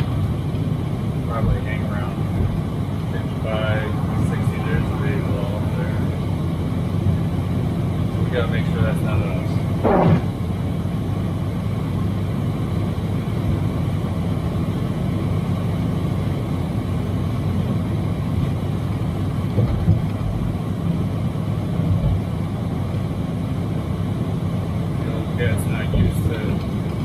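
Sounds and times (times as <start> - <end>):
road noise: 0.0 - 27.0
truck diesel engine droning: 0.0 - 27.0.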